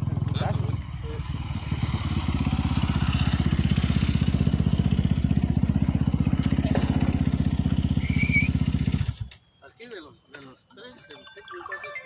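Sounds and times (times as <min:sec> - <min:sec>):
dirt bike engine idling: 0:00.0 - 0:09.5.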